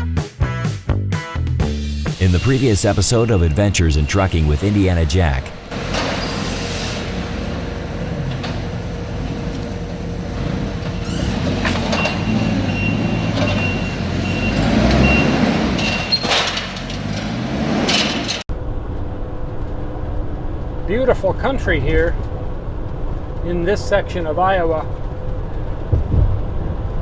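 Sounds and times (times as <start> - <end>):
short high-pitched beeps: 2.2 - 5.5
truck engine hum: 2.2 - 27.0
engine clatter: 3.1 - 27.0.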